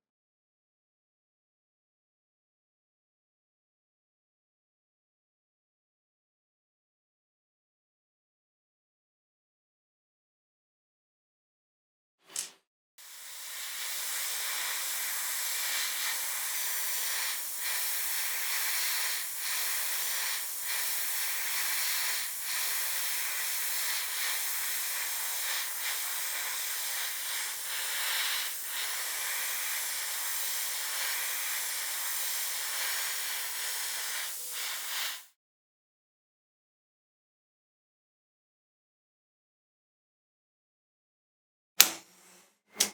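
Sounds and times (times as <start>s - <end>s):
spray paint hissing: 12.3s - 35.3s.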